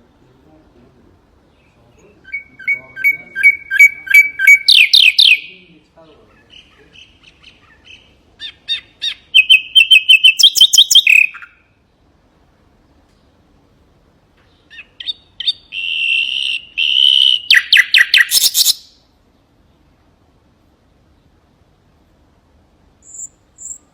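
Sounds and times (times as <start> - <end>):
nightingale singing: 1.4 - 11.8, 14.4 - 19.9, 23.0 - 23.9.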